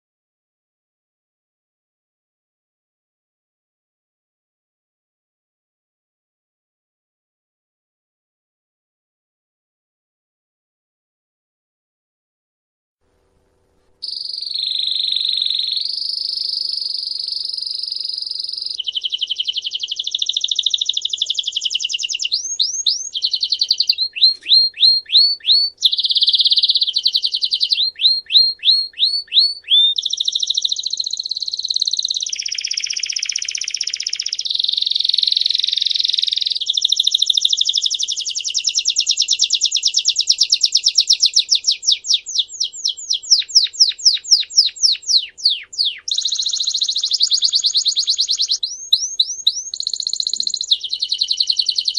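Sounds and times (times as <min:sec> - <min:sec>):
songbird singing trills: 0:14.0 - 0:51.9.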